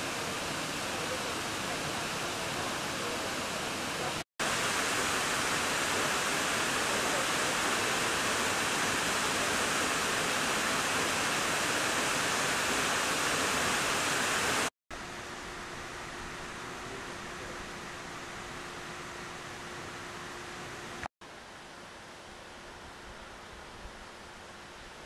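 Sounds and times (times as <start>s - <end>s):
waterfall pouring: 0.0s - 14.7s.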